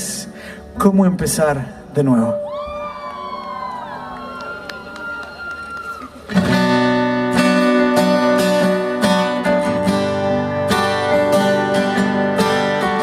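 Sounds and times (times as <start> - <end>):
acoustic guitar strumming: 6.3 - 13.0.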